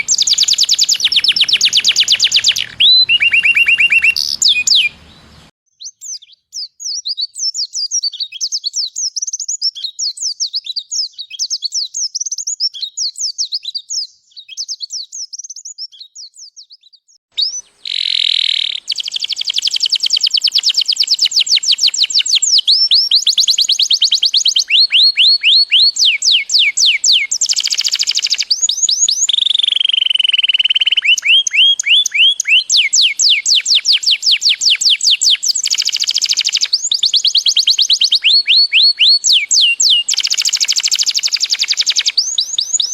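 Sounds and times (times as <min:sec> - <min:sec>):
fast bird trills: 0:00.0 - 0:05.5, 0:17.4 - 0:42.9
bird whistles: 0:00.0 - 0:06.3, 0:17.4 - 0:42.9
high bird chirps: 0:00.0 - 0:06.7, 0:12.7 - 0:42.9.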